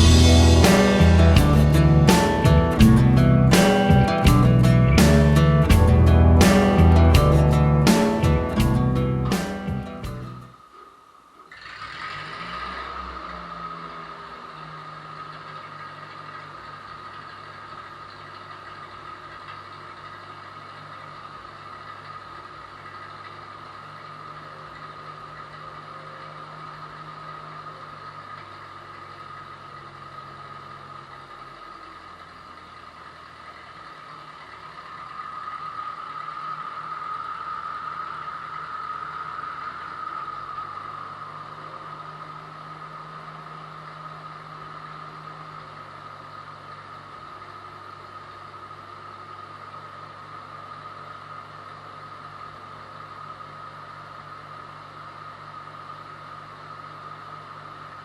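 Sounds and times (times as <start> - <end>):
high whine: 0.0 - 28.1
engine idling: 0.0 - 58.0.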